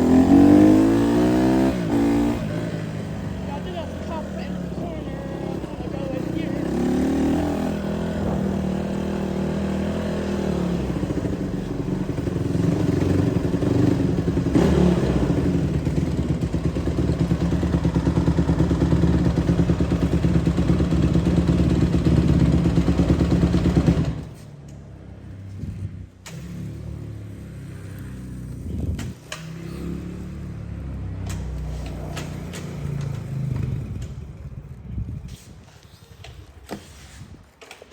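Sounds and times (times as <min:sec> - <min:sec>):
dirt bike engine revving: 0:00.0 - 0:24.2.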